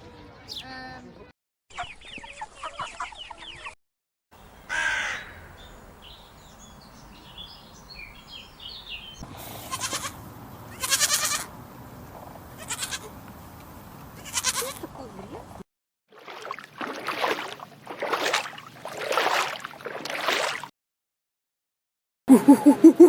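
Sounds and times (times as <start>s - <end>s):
loud harsh animal calls: 9.4s - 11.5s, 12.6s - 13.1s.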